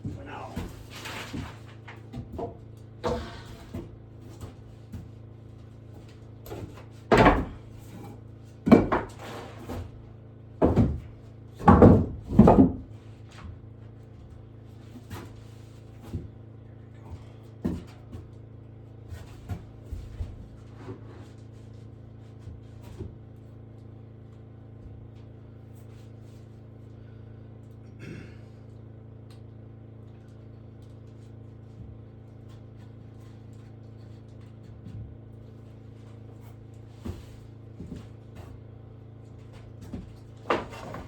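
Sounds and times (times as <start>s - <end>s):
steady low hum: 0.0s - 41.0s
objects knocking and clattering: 6.5s - 9.9s, 10.6s - 12.9s, 39.8s - 41.0s
scrape: 9.2s - 9.7s, 20.6s - 21.5s.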